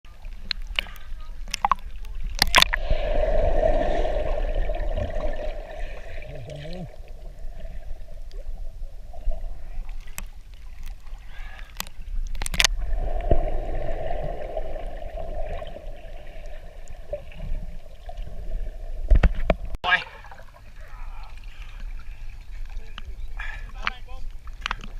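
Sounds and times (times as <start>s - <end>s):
low wind noise: 2.6s - 9.9s, 11.9s - 17.8s.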